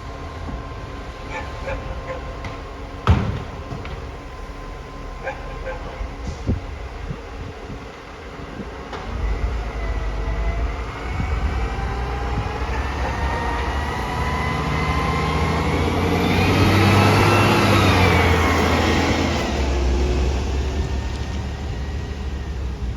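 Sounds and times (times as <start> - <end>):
garbage truck driving past: 9.1 - 22.9.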